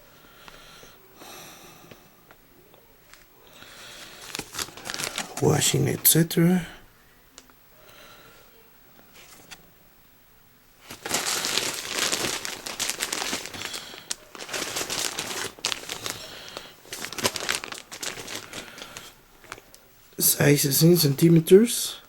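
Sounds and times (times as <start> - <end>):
packaging crinkling: 4.0 - 5.8, 10.8 - 19.8.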